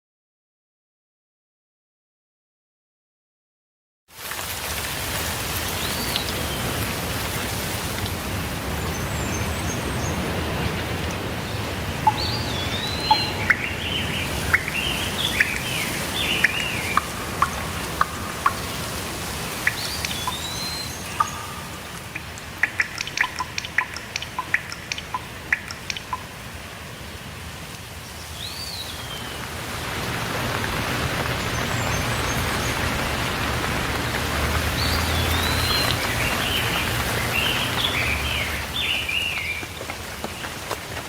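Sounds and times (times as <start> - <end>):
steady rain: 4.1 - 41.0
sharp drips: 10.8 - 26.8, 29.4 - 41.0
birds singing: 11.4 - 26.2, 28.2 - 29.5, 34.7 - 39.8.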